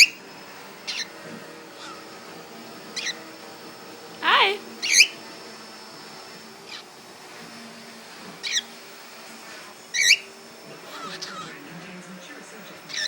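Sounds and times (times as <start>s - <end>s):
cockatiel warbling chirps: 4.8s - 5.2s, 9.9s - 10.2s.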